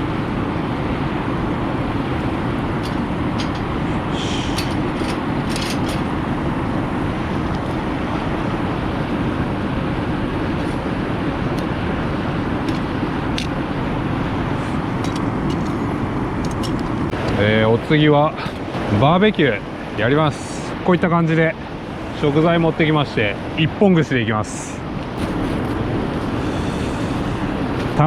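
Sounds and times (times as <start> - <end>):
steady rushing noise: 0.0 - 28.0.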